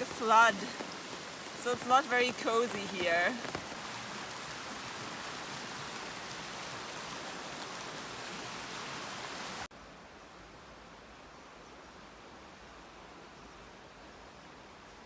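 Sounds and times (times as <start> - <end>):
heavy rain hissing: 0.0 - 9.7.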